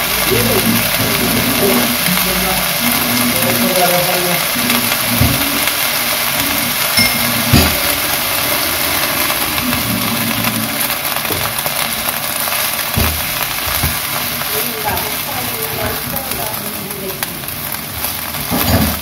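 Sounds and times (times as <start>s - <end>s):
greens sizzling in frying pan: 0.0s - 19.0s.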